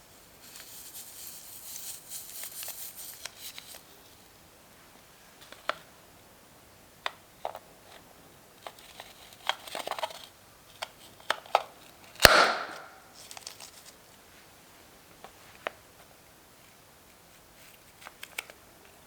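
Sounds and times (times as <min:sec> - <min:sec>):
balloon popping: 0:12.2 - 0:13.0
small clicks and taps: 0:18.0 - 0:19.0.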